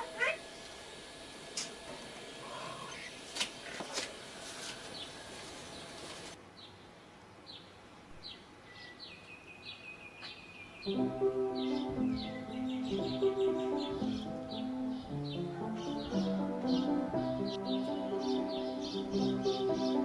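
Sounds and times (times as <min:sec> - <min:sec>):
bird chirping: 0:07.5 - 0:20.0
music: 0:10.9 - 0:20.0.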